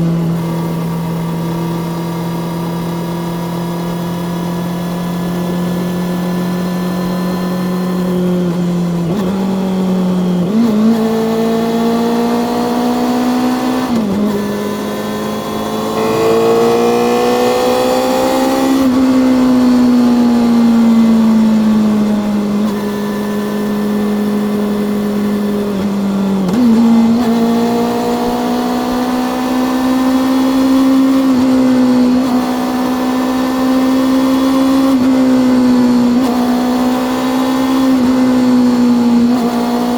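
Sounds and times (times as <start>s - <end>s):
motorcycle engine revving: 10.7s - 29.9s
road noise: 13.3s - 20.8s.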